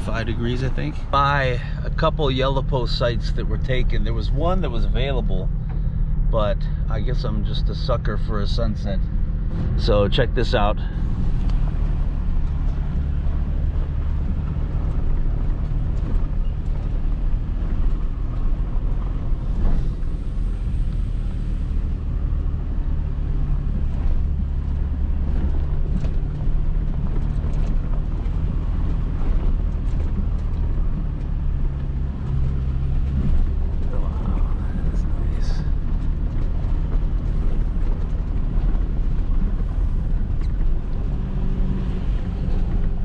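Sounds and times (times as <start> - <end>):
engine and tyres droning: 0.0 - 43.0.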